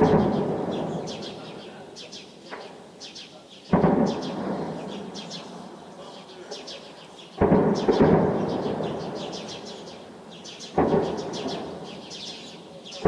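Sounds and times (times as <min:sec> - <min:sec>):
distant explosion booms: 0:00.0 - 0:01.6, 0:03.7 - 0:05.7, 0:07.3 - 0:12.3
birds chirping: 0:00.0 - 0:13.0.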